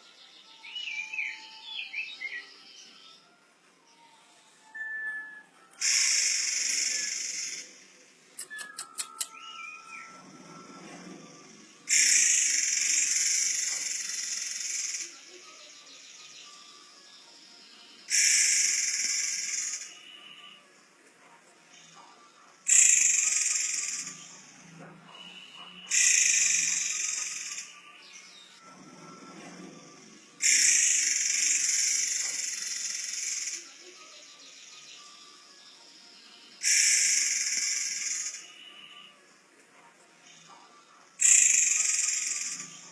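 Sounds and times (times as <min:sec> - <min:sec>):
bird screeching calls: 0:05.8 - 0:07.8, 0:11.8 - 0:15.2, 0:25.2 - 0:27.8, 0:29.8 - 0:33.7, 0:36.6 - 0:39.1.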